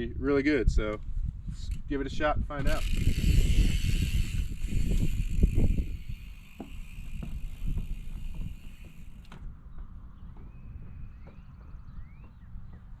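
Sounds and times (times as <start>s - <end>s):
wind on microphone: 0.0s - 13.0s
bicycle tyres rumbling on dirt: 2.6s - 12.9s
bicycle clicks and knocks: 2.7s - 10.5s.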